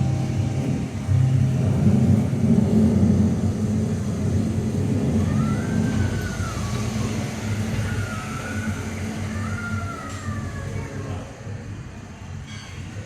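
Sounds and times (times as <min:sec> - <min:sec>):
faint high tone rising and falling: 0:00.0 - 0:11.3
rumble of passing cars: 0:00.0 - 0:13.0.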